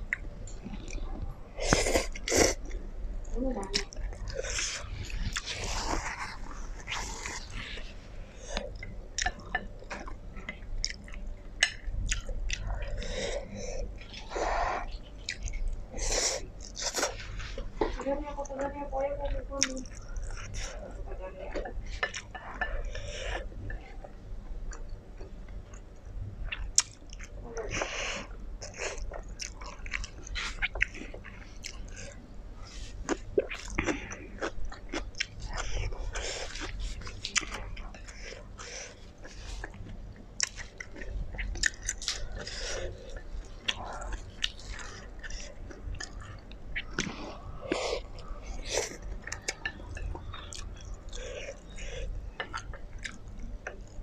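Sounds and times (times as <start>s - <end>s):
person chewing noodles: 0.0s - 17.6s, 19.6s - 21.0s, 22.0s - 54.0s.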